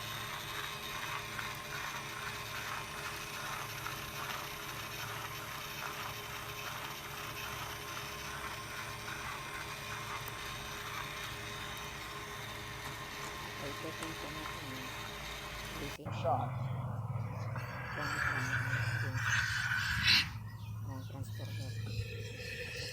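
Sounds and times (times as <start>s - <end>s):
faint whine: 9.5s - 22.9s.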